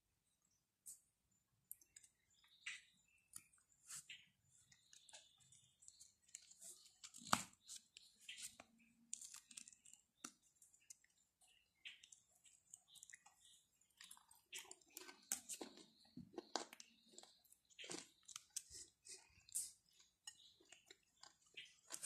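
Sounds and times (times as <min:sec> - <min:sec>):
chewing flatbread: 0:01.6 - 0:22.0
bread tearing by hand: 0:06.3 - 0:10.4.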